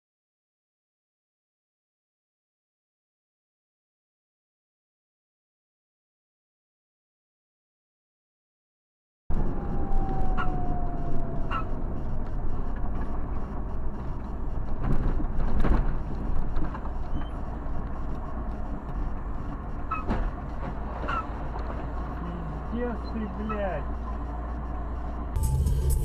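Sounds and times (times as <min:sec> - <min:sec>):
vehicle road and engine rumble: 0:09.3 - 0:26.0.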